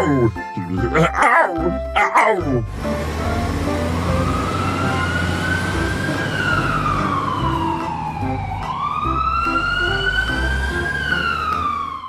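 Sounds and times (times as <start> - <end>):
background music with low notes: 0.0 - 12.0
siren wailing: 4.0 - 12.0.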